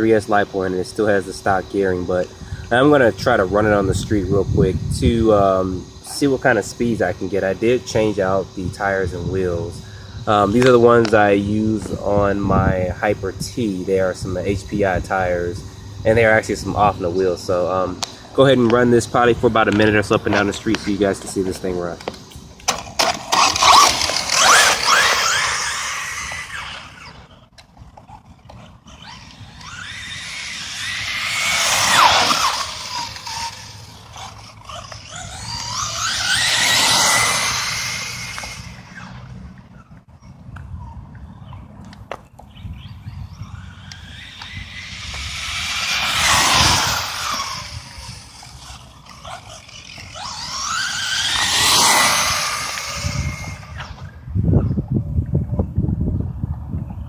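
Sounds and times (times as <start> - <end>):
electric motor whining: 0.0 - 40.1, 42.4 - 54.8
tyre noise on pavement: 10.4 - 54.2.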